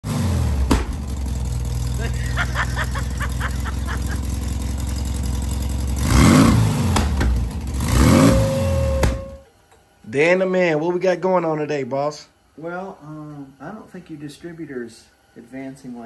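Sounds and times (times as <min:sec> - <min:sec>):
car engine idling and revving: 0:00.0 - 0:09.4.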